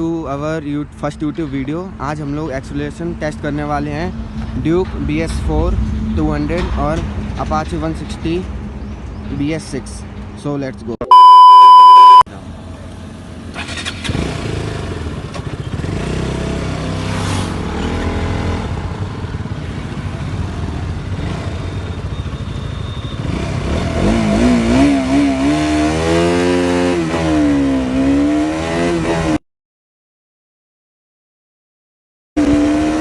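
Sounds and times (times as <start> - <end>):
motorcycle engines accelerating: 12.4 - 29.4, 32.4 - 33.0.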